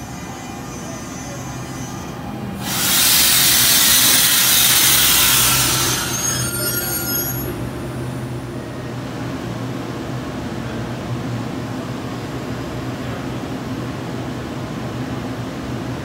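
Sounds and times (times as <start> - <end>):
train braking hiss: 0.0 - 8.4
low train equipment hum: 0.0 - 16.0
brake squeals: 3.1 - 7.7.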